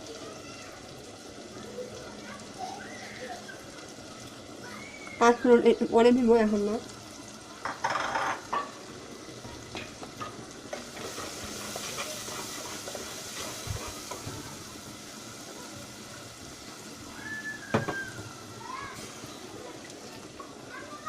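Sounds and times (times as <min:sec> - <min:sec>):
spice paste sizzling in oil: 0:00.0 - 0:21.0
spoon stirring: 0:10.7 - 0:14.2.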